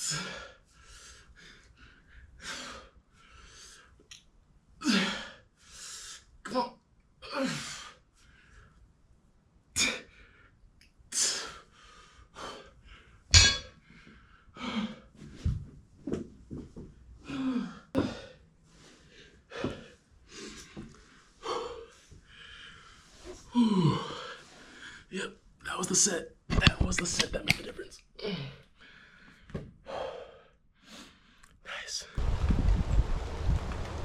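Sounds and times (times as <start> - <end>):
man breathing hard: 0.0 - 4.0, 4.8 - 6.3, 9.8 - 15.4, 17.2 - 25.1, 28.2 - 31.4
man grunting: 23.6 - 24.2.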